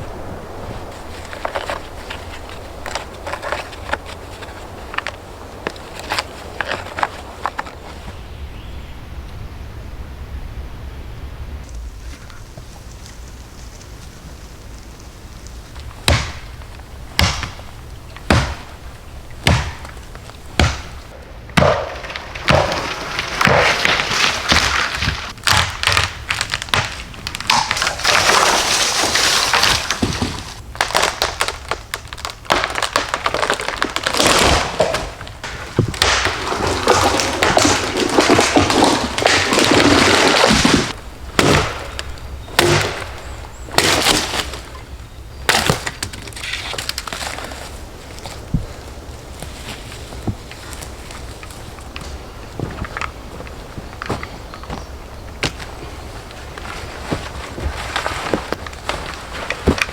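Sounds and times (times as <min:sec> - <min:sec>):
scraping and crunching: 0:00.0 - 0:08.2, 0:11.6 - 0:59.9
sharp knocks: 0:17.2 - 0:18.7, 0:19.4 - 0:28.2.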